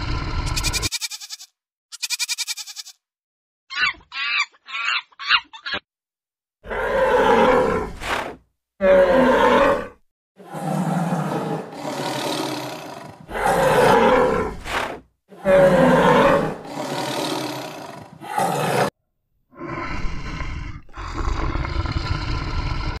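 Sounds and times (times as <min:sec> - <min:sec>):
animal roars and calls: 0:00.0 - 0:00.9, 0:06.6 - 0:18.9, 0:19.5 - 0:23.0.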